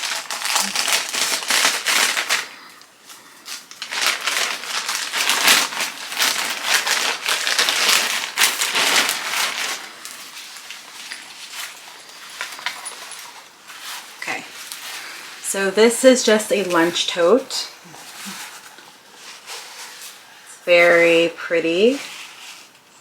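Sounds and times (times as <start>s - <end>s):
packaging crinkling: 0.0s - 15.1s.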